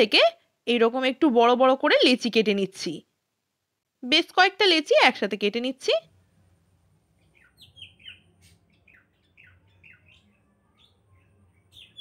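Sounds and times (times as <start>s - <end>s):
birds chirping: 7.2s - 12.0s.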